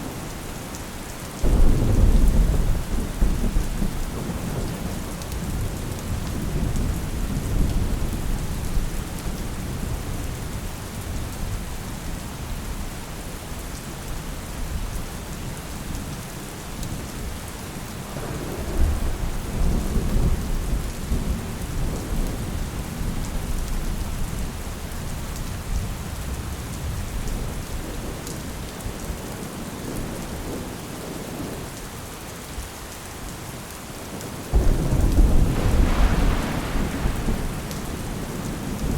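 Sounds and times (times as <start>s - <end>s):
steady rain falling: 0.0s - 38.9s
low rolling thunder: 1.4s - 11.6s, 18.1s - 24.4s, 34.5s - 38.9s.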